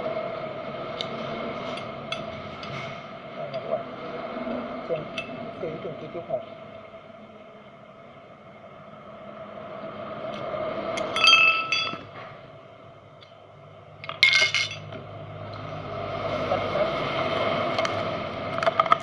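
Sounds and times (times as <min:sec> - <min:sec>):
steady background hum: 0:00.0 - 0:19.0
metal parts clinking: 0:14.0 - 0:14.9.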